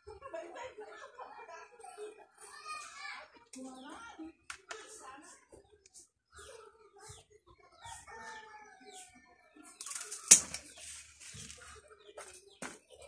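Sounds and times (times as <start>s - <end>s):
chicken clucking: 5.5s - 13.0s
rustling: 9.8s - 11.7s
loud sharp snap: 10.2s - 10.6s.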